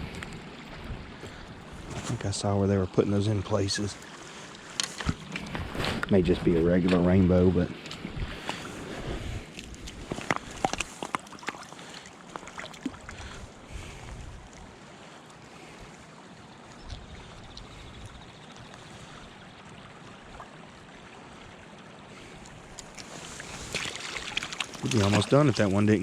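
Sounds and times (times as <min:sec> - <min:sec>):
flowing river water: 0:00.0 - 0:26.0.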